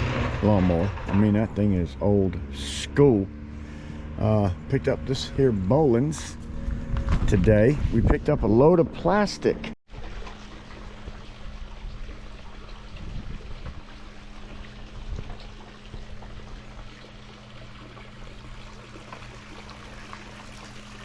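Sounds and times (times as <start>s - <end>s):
low hum: 0.0s - 21.0s
pool water trickling: 9.9s - 21.0s.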